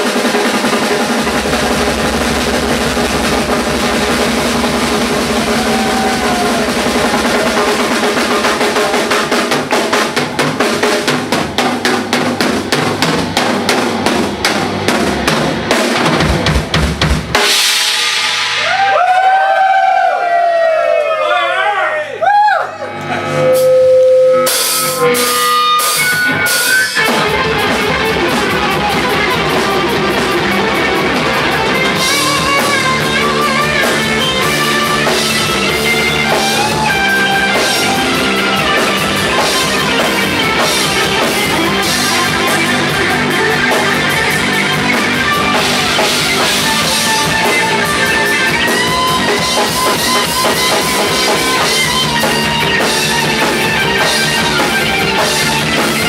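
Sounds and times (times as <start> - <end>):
electric guitar lead notes: 0.0 - 10.9, 22.8 - 56.0
drum kit: 0.0 - 20.7, 23.2 - 56.0.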